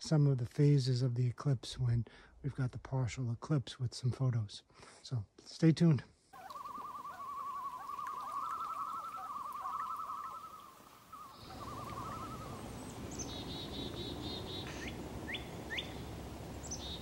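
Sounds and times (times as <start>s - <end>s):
bird's quavering call: 6.4s - 17.0s
songbird trills: 6.4s - 17.0s
outdoor noise floor: 9.7s - 17.0s.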